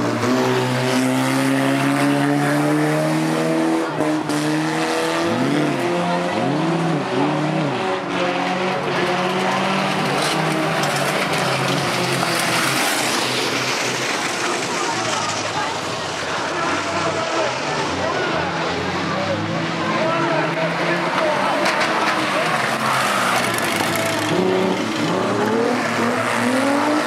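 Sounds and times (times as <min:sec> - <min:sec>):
car engine revving hard: 0:00.0 - 0:14.9, 0:16.9 - 0:27.0
tyre and track noise: 0:08.4 - 0:18.3, 0:20.0 - 0:27.0.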